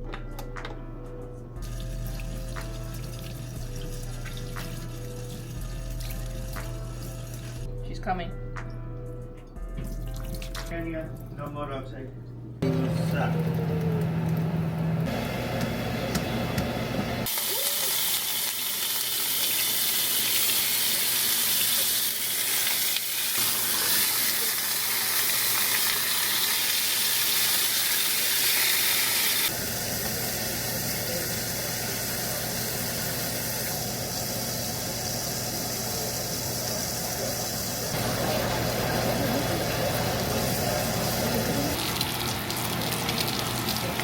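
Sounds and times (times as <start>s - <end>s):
food sizzling in a pan: 17.2s - 44.0s.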